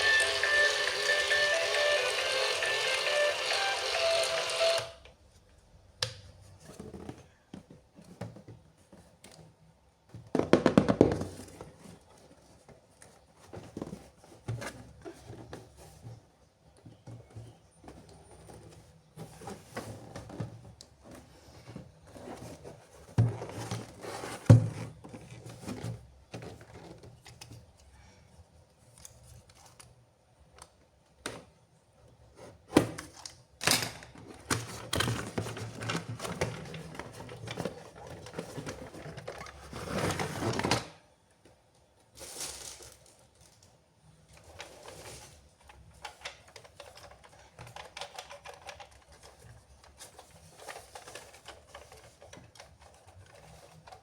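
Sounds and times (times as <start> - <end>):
plastic packaging rustling: 34.3 - 40.9, 42.1 - 54.0.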